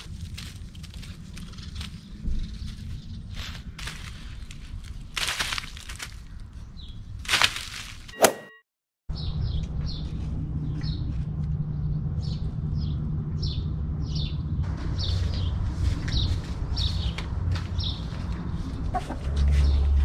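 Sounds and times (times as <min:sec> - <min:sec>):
low rumble: 0:09.1 - 0:20.0.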